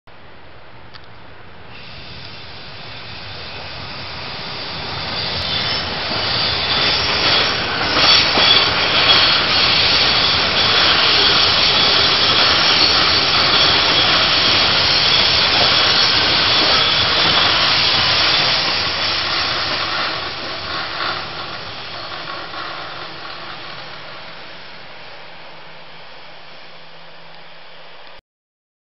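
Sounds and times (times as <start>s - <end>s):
train wheels rumbling on rail: 1.0s - 25.4s
high squealing tones: 2.9s - 24.3s.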